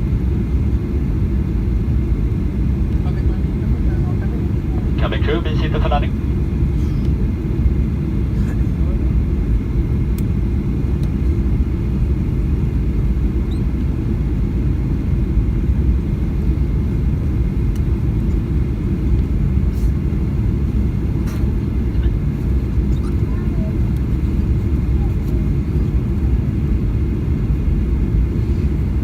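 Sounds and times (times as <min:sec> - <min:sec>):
airplane cabin rumble: 0:00.0 - 0:29.0.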